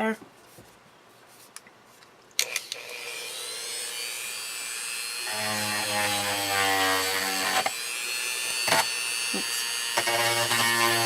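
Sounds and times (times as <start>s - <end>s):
low buzz of bit on work: 2.4s - 11.0s
rotary tool high whine: 2.4s - 11.0s.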